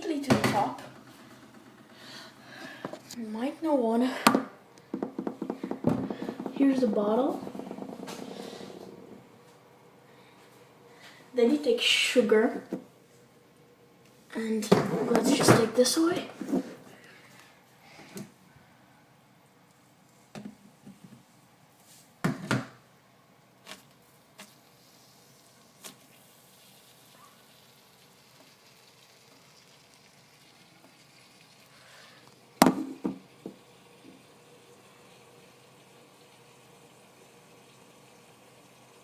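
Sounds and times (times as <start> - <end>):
objects knocking on hard surface: 4.3 - 9.2, 32.6 - 33.6
loud bumps: 4.9 - 9.2.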